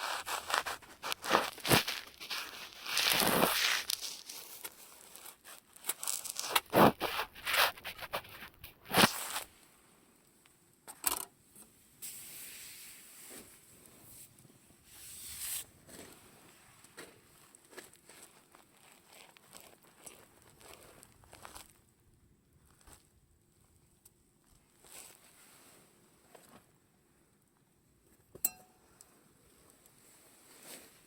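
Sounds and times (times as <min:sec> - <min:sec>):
campfire crackling and popping: 0:00.0 - 0:04.4.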